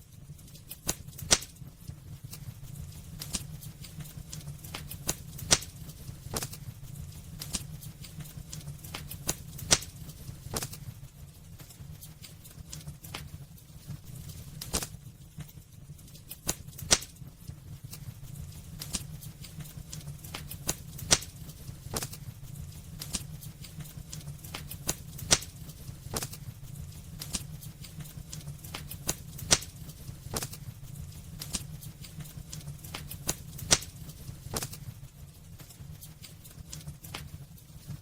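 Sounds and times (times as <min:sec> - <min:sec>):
wood fire crackling: 0:00.0 - 0:38.0
loud fire pops: 0:00.6 - 0:11.0, 0:14.0 - 0:15.5, 0:16.2 - 0:35.0.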